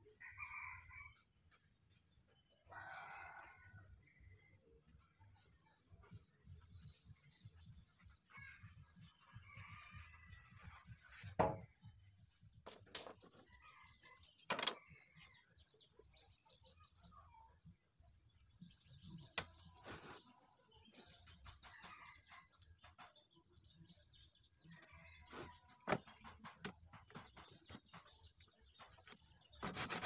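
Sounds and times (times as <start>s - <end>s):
rooster crowing: 2.7s - 3.7s
wooden knocks on workbench: 11.3s - 11.7s, 25.8s - 27.4s
small birds chirping: 12.3s - 30.0s.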